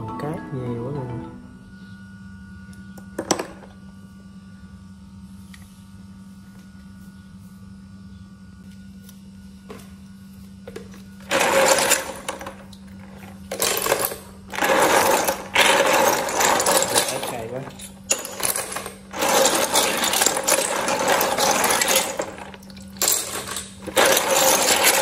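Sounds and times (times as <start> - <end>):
steady low hum: 0.0 - 25.0
snail shells rattling and grinding: 11.2 - 25.0.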